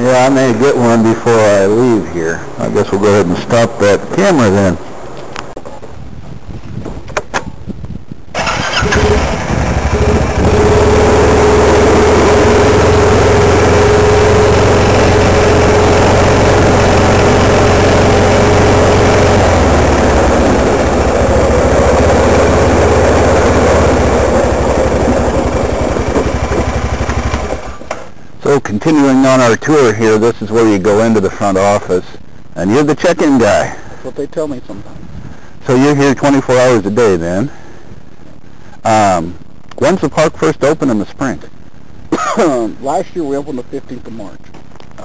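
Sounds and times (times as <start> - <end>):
vehicle engine running: 8.4 - 27.9.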